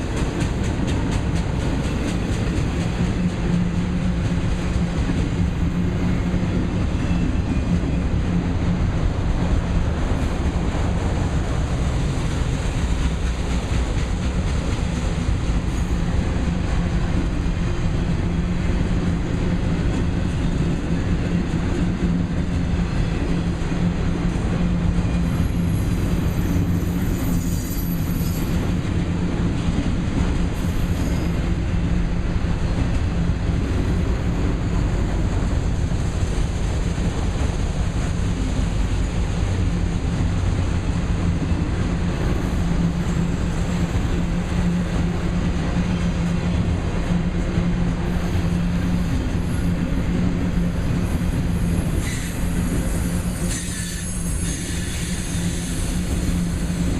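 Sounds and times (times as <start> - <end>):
train wheels rumbling on rails: 0.0 - 56.9
high wheel squeal: 25.0 - 28.8, 30.6 - 31.4, 51.4 - 56.8.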